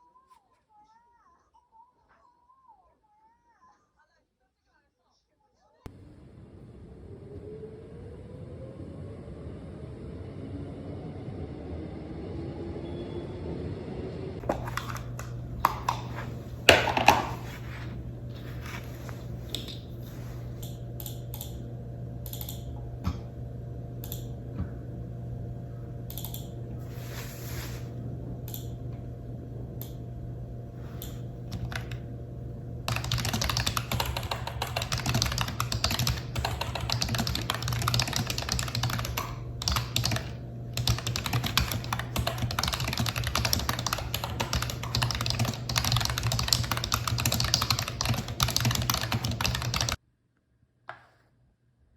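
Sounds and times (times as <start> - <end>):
low hum: 5.9 - 50.0
typing on computer keyboard: 14.4 - 17.6, 22.3 - 22.7, 31.0 - 32.0, 32.9 - 50.0.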